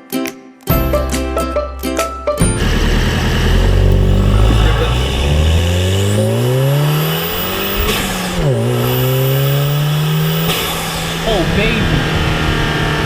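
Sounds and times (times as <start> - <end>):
car engine accelerating hard: 2.6 - 13.0.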